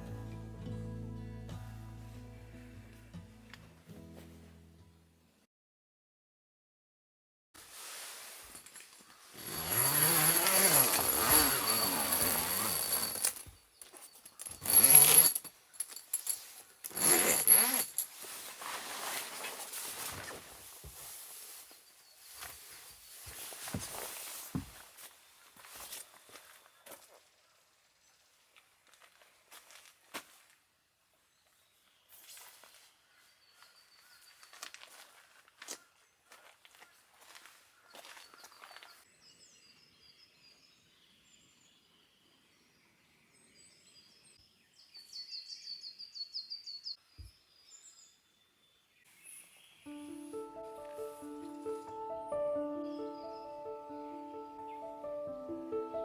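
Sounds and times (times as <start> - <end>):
small motor tool whining: 9.4 - 13.4.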